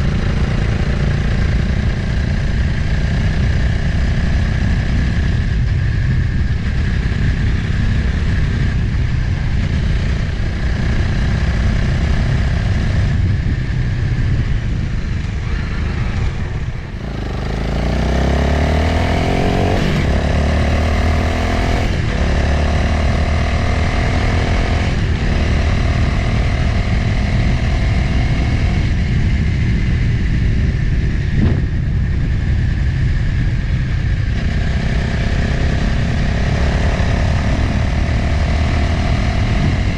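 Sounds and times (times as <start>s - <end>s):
motorcycle engine: 0.0s - 39.9s
wind on microphone: 0.0s - 39.9s.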